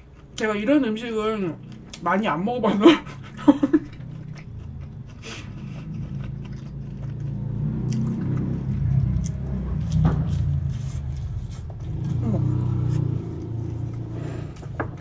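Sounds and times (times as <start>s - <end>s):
passing motor vehicle rumble: 3.0s - 15.0s
chewing and biting: 3.8s - 14.7s.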